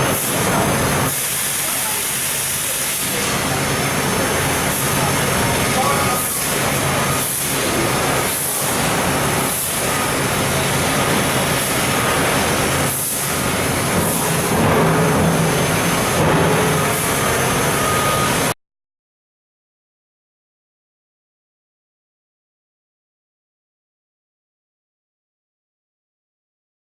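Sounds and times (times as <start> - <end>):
laser cutting machine rushing: 0.0 - 18.5.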